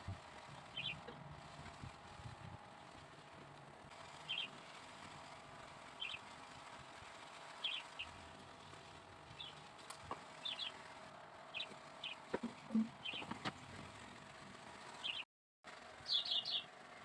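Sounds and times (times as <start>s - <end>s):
faint background hum: 0.0s - 17.0s
small bird chirping: 0.7s - 1.1s, 4.2s - 4.6s, 6.0s - 6.2s, 7.6s - 8.2s, 9.4s - 9.6s, 10.4s - 10.8s, 11.5s - 13.3s, 15.0s - 15.2s, 16.0s - 16.7s.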